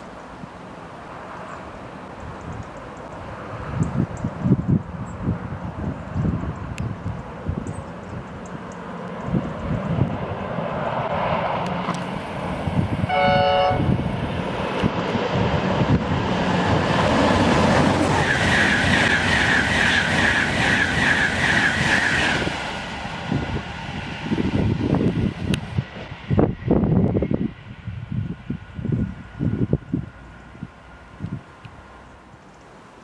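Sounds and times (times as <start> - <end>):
train rushing past: 8.6 - 32.1
train horn blast: 13.0 - 14.2.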